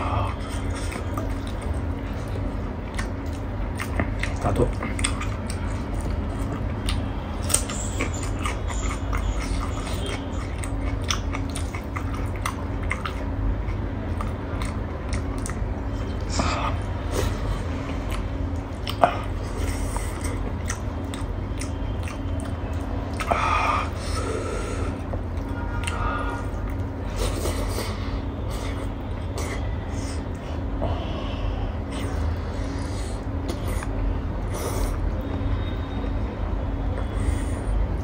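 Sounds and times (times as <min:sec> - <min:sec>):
person chewing food: 0:00.0 - 0:36.1
wet mouth clicks: 0:00.2 - 0:15.6, 0:18.1 - 0:24.0.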